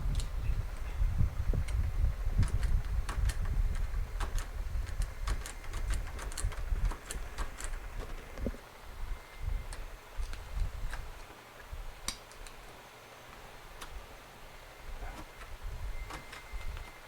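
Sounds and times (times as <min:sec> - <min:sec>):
sharp electrical clicks and snaps: 0:01.6 - 0:08.6, 0:09.6 - 0:12.7, 0:13.3 - 0:14.0.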